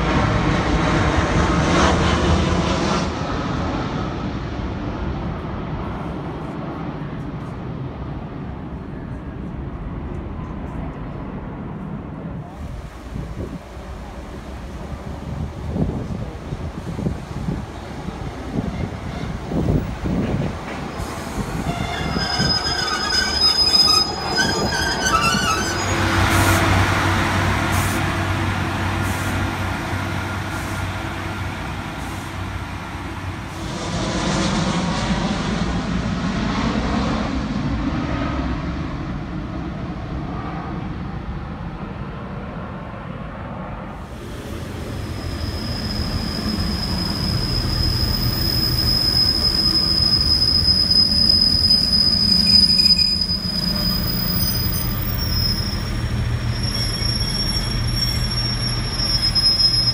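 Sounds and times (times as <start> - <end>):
diesel train engine hum: 0.0 - 59.9
jet airliner passing overhead: 0.0 - 59.9
train wheel squeal: 18.1 - 26.8, 44.5 - 59.9.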